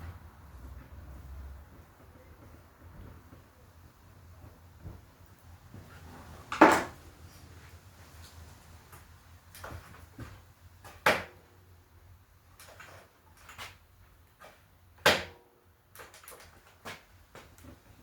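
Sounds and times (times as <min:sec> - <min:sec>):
tools clicking and knocking: 0:12.6 - 0:14.6, 0:15.9 - 0:17.7.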